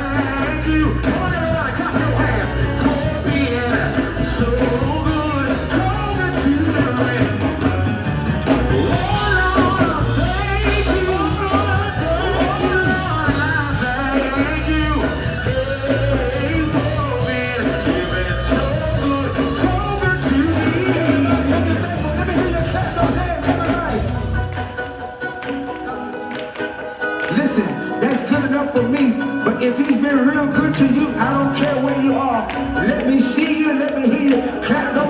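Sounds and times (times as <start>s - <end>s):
gospel group singing: 0.0s - 25.5s
band accompaniment with steady beat: 0.0s - 35.0s.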